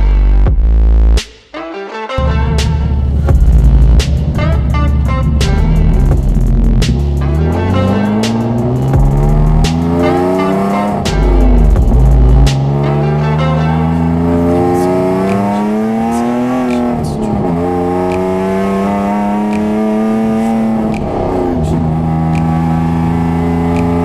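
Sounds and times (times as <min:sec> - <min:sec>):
car engine revving: 0:02.2 - 0:24.0.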